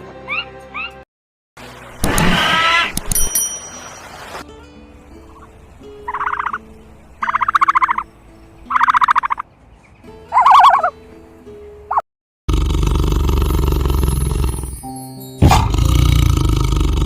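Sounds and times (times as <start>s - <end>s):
turkey gobbling: 6.1s - 6.6s, 7.2s - 8.0s, 8.7s - 9.4s, 10.3s - 10.9s.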